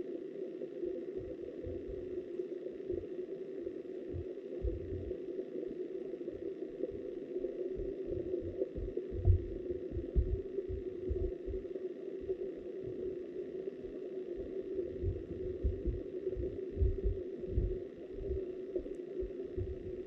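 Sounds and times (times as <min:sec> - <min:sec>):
muffled underwater river hum: 0:00.0 - 0:20.0
low underwater thuds: 0:08.4 - 0:11.6, 0:15.0 - 0:18.4.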